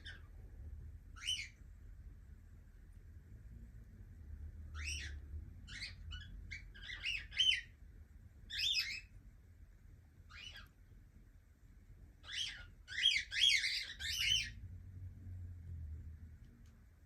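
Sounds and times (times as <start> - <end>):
cockatiel chirping: 0.0 - 0.3, 1.2 - 1.6, 4.7 - 7.8, 8.5 - 9.1, 10.3 - 10.8, 12.2 - 14.6.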